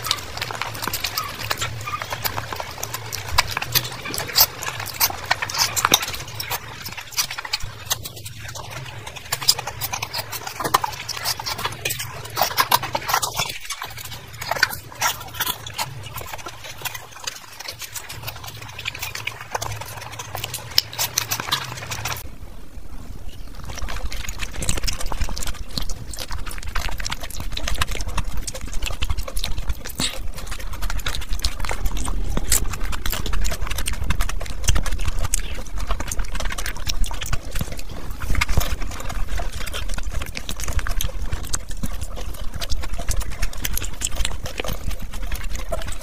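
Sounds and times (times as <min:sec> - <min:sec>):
close chewing with lip smacks: 0:00.0 - 0:22.3, 0:23.2 - 0:46.0.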